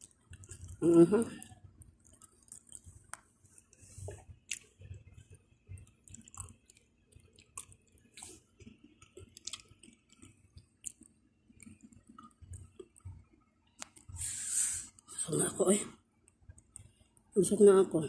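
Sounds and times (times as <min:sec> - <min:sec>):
chewing pizza: 0:00.0 - 0:14.2
wet mouth smacks and clicks: 0:04.5 - 0:04.7, 0:05.8 - 0:13.1.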